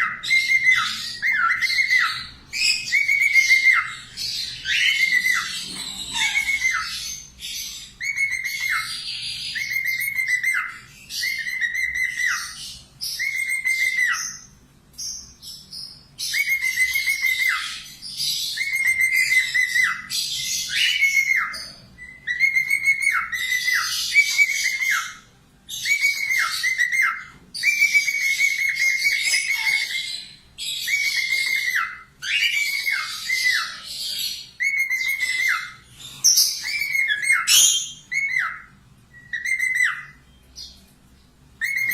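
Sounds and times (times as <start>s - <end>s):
parakeet harsh chatter: 0.0s - 12.6s, 25.9s - 40.2s
parakeet whistled calls: 0.0s - 40.8s, 41.6s - 41.9s.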